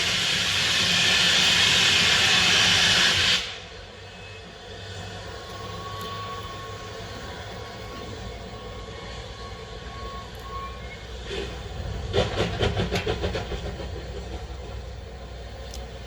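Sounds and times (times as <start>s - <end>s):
steam locomotive rumble: 0.0s - 16.0s.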